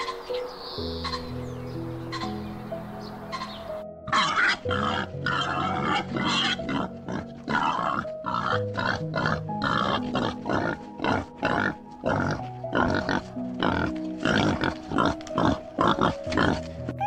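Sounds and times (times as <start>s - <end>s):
soft piano music: 0.0s - 17.0s
pigs grunting: 3.3s - 17.0s.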